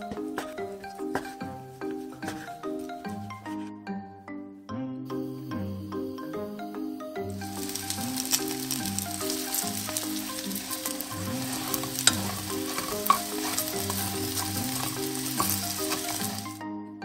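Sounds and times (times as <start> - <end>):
food sizzling in hot oil: 7.4 - 16.6
wooden spatula stirring: 7.4 - 16.6.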